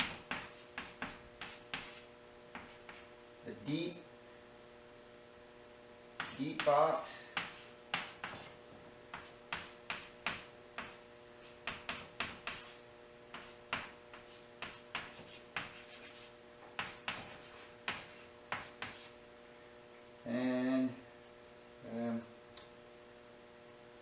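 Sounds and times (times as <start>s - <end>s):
pen scratching on paper: 0.0s - 3.1s, 6.2s - 8.6s, 9.2s - 19.2s
faint steady hum: 0.0s - 24.0s.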